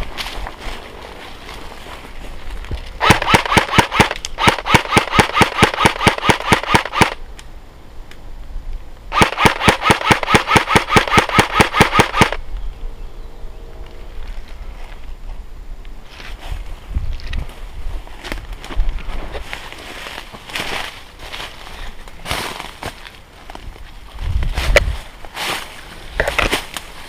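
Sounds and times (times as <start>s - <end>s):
airsoft gun firing full auto: 3.0s - 7.2s, 9.1s - 12.4s.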